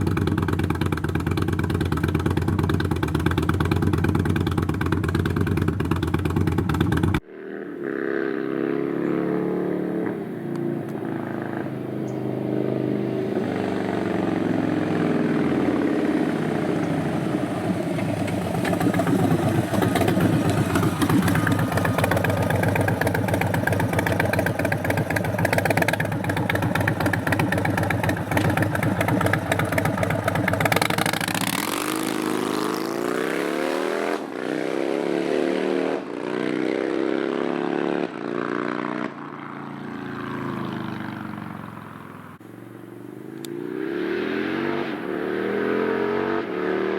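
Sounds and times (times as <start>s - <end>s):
motorcycle engine deep exhaust: 0.0s - 34.4s.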